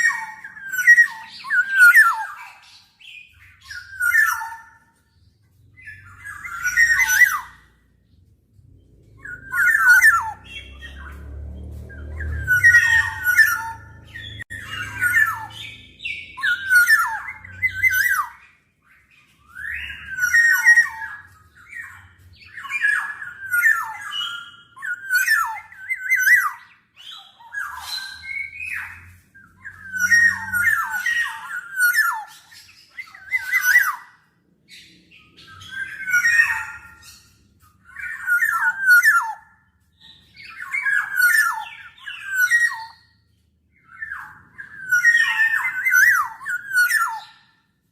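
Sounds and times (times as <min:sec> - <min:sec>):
oriole calling: 0:09.2 - 0:11.3, 0:12.0 - 0:18.6.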